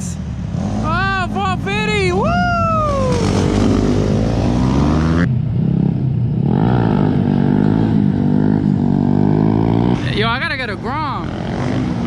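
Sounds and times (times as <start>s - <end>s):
dirt bike engine revving: 3.0s - 10.4s.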